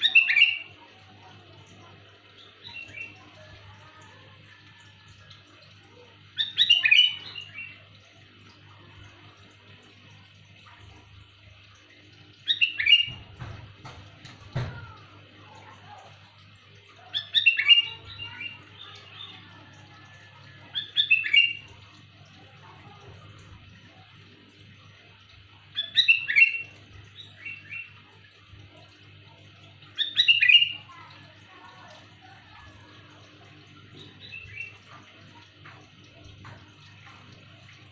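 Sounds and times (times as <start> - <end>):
bird chirping calls: 0.0 - 4.6, 5.2 - 8.6, 12.3 - 13.4, 25.6 - 37.2.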